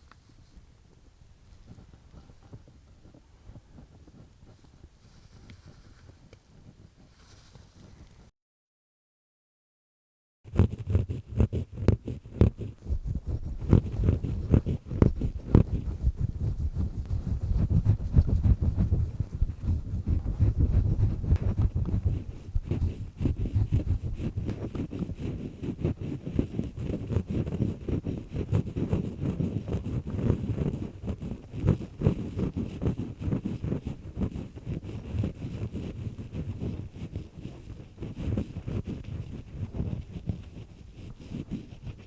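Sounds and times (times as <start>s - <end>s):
earpick scraping in ear canal: 10.5s - 42.0s.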